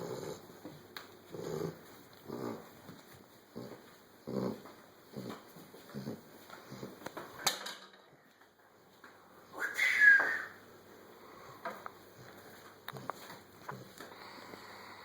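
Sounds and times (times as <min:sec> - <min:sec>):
dog snoring: 0:00.0 - 0:00.5, 0:01.3 - 0:02.7, 0:03.5 - 0:07.0.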